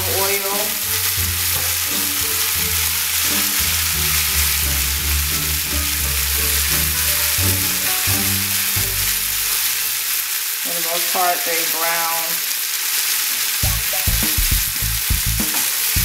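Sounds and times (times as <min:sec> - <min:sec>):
background music with deep bass: 0:00.0 - 0:09.8, 0:13.6 - 0:16.0
shrimp sizzling in oil: 0:00.0 - 0:16.0.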